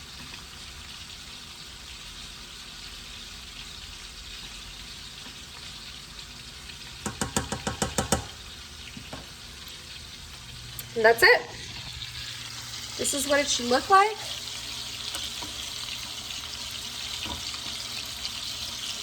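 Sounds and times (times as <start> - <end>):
pot of beans sizzling: 0.0 - 19.0
spoon knocking against pot: 7.0 - 8.4.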